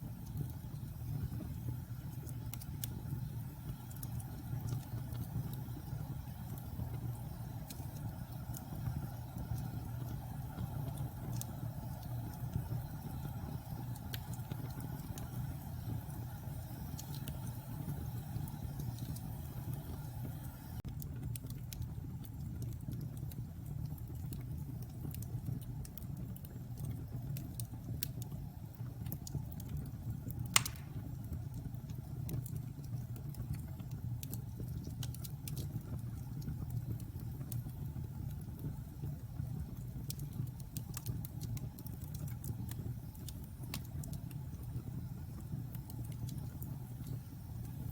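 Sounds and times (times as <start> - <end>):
fire crackling: 0.0 - 47.9
wood fire rumbling: 0.0 - 47.9
sharp loud pop: 30.6 - 31.0.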